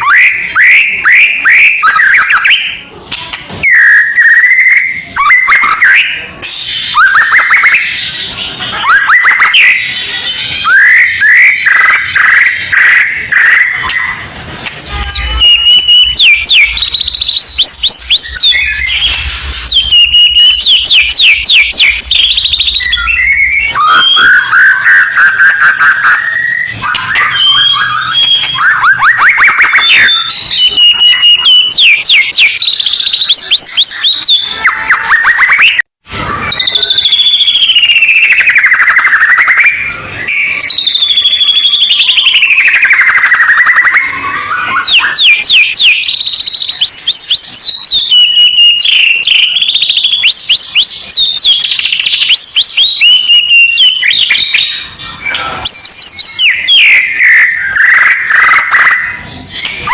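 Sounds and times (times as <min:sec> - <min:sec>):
shama bird song: 0:00.0 - 0:59.9.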